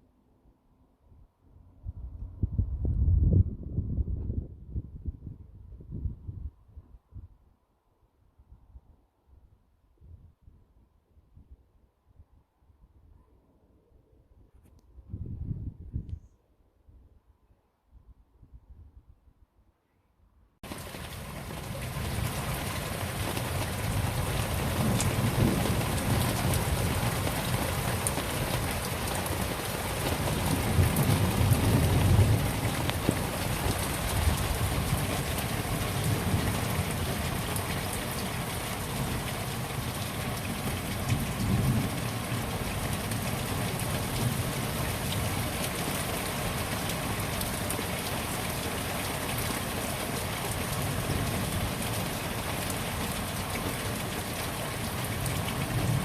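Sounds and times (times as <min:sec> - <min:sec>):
heavy rain hissing: 0:20.6 - 0:56.0.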